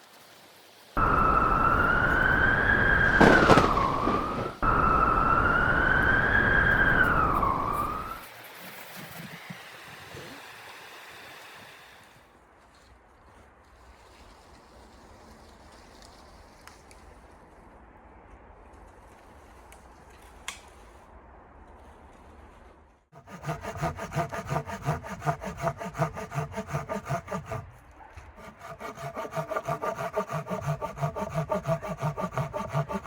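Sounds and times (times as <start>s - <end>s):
loud rush of noise: 1.0s - 8.2s
wind howling with whistle: 1.0s - 11.1s.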